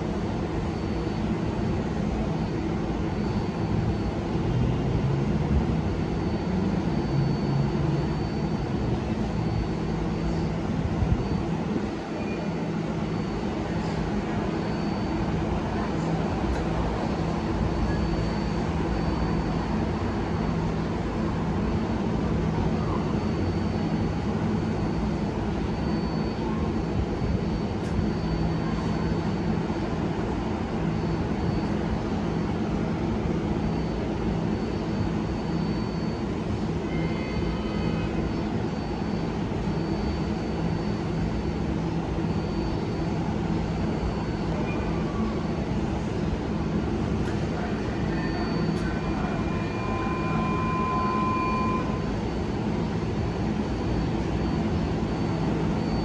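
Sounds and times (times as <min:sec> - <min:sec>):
high-pitched whine: 0:00.0 - 0:56.0
subway train rumbling: 0:00.0 - 0:56.0.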